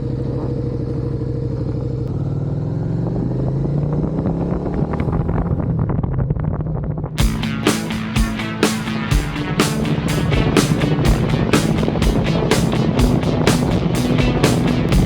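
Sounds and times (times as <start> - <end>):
motorcycle engine accelerating: 0.0 - 15.0
music with steady beat: 7.2 - 15.0.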